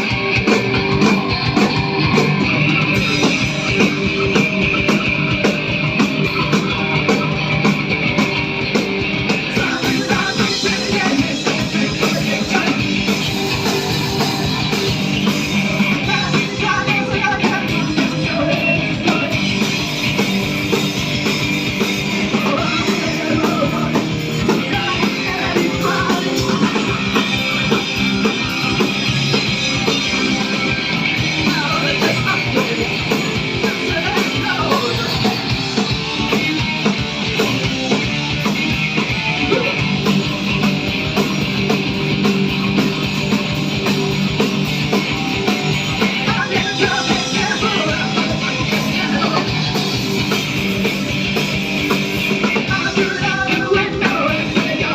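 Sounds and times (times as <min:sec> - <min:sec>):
loud rock band playing: 0:00.0 - 0:54.9
person singing: 0:09.4 - 0:19.8, 0:22.2 - 0:27.5, 0:31.2 - 0:35.6, 0:45.9 - 0:50.4, 0:52.4 - 0:54.9.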